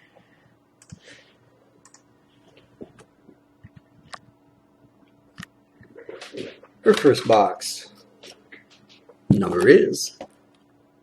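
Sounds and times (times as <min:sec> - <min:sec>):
faint clicks and light taps: 0:01.8 - 0:04.3.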